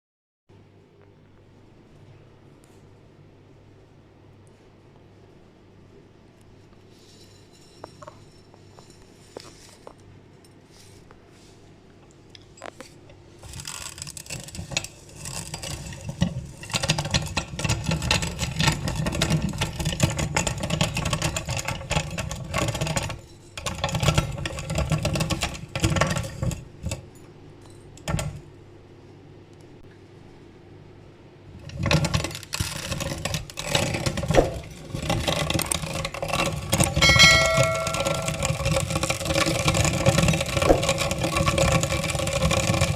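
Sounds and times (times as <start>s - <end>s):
pasta snapping in grinder: 13.4s - 27.0s, 31.6s - 42.9s
grinder motor hum: 32.8s - 42.9s.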